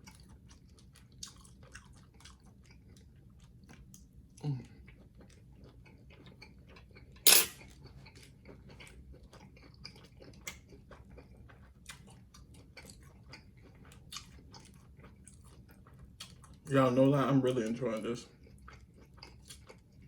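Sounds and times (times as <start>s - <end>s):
person chewing: 0.0s - 16.7s, 17.6s - 20.0s.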